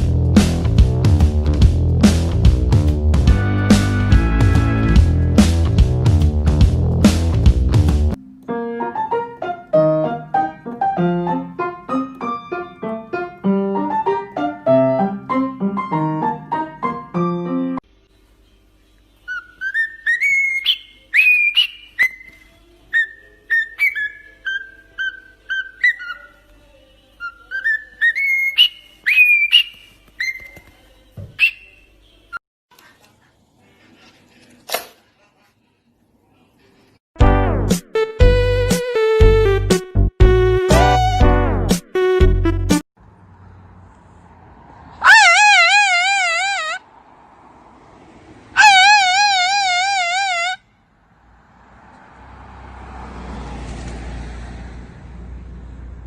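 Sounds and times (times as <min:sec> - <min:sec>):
keyboard playing simple tune: 0:03.3 - 0:05.5, 0:08.2 - 0:17.8, 0:37.2 - 0:42.8
parrot whistling: 0:19.3 - 0:26.4, 0:27.2 - 0:30.6, 0:31.4 - 0:31.9, 0:45.0 - 0:46.8, 0:48.6 - 0:50.6.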